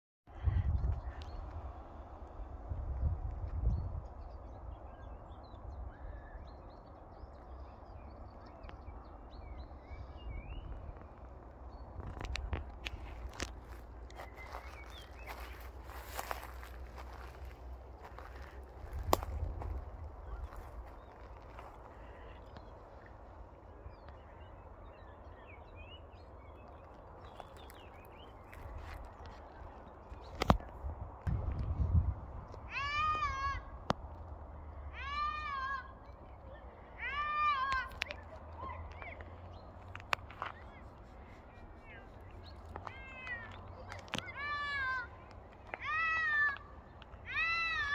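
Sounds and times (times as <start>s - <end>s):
songbirds chirping and singing: 0.3s - 31.8s, 35.9s - 47.9s
steady low rumble: 7.2s - 32.7s.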